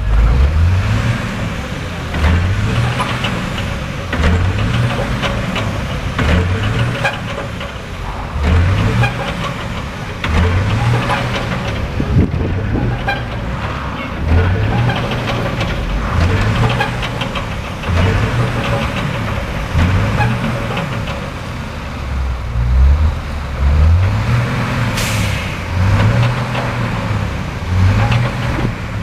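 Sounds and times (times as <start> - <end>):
truck engine revving: 0.0 - 29.0.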